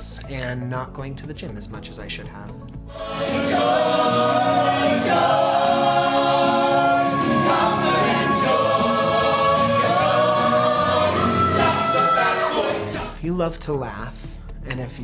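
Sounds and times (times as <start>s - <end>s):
instrumental accompaniment: 2.6s - 13.2s
group of voices singing: 2.9s - 13.2s.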